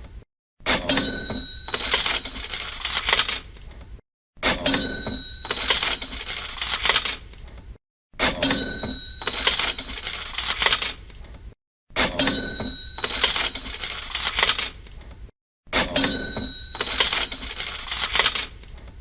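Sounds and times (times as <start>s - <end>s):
cash register bell ding: 0.7s - 3.3s, 4.5s - 7.0s, 8.3s - 10.8s, 12.0s - 14.8s, 15.8s - 18.5s
cash register drawer: 0.7s - 3.7s, 4.4s - 7.4s, 8.2s - 11.2s, 12.0s - 15.0s, 15.7s - 18.8s
coins jangling: 0.9s - 3.6s, 4.7s - 7.4s, 8.4s - 11.2s, 12.2s - 14.9s, 16.0s - 18.7s.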